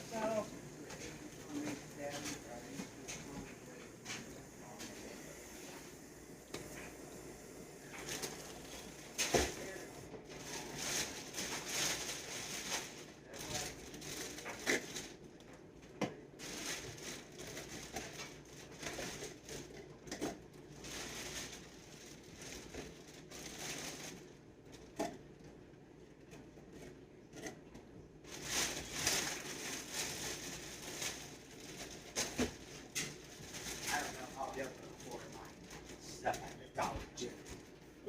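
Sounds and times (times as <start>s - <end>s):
plastic packaging crinkling: 7.8s - 15.3s, 16.4s - 24.4s, 28.3s - 37.7s.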